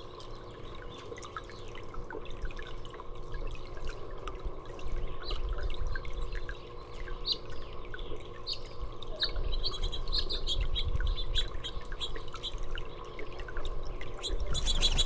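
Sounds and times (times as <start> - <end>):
low steady hum: 0.0 - 15.0
songbirds chirping: 6.3 - 15.0.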